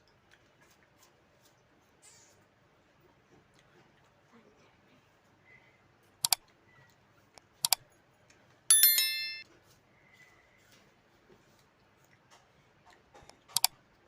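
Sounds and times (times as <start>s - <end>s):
ringing clink: 8.7s - 9.4s.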